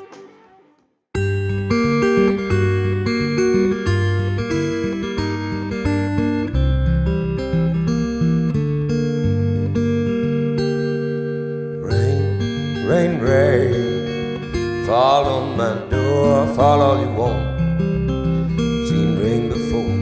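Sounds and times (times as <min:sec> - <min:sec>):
wavering vibrato melody: 0:01.2 - 0:07.0
acoustic guitar strumming chords: 0:01.2 - 0:20.0.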